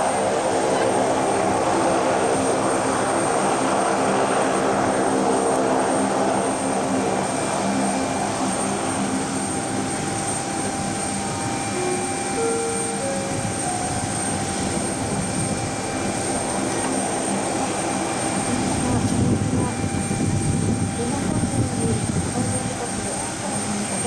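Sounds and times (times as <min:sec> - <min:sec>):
engine rush: 0:00.0 - 0:24.0
turboprop propeller hum: 0:00.0 - 0:24.0.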